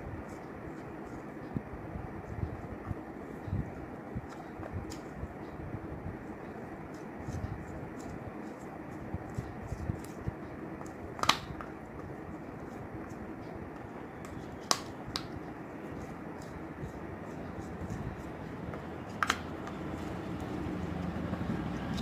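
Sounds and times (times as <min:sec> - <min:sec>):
low background noise: 0:00.0 - 0:22.0.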